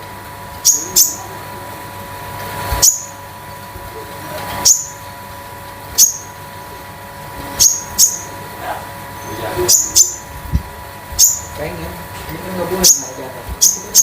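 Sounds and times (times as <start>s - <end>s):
songbird metallic chirps: 0.6s - 1.2s, 2.8s - 3.2s, 4.6s - 5.0s, 6.0s - 6.3s, 7.6s - 8.4s, 9.2s - 10.3s, 11.2s - 11.6s, 12.8s - 14.0s.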